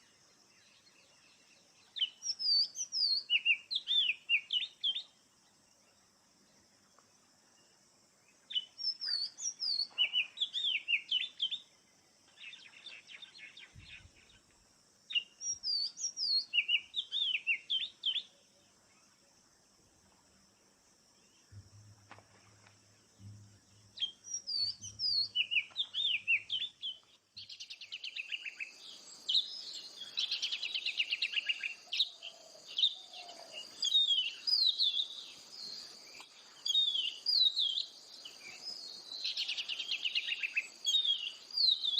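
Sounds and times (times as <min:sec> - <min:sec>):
songbird whistling song: 0:01.8 - 0:05.2, 0:08.4 - 0:11.7, 0:15.1 - 0:18.4, 0:23.2 - 0:41.9.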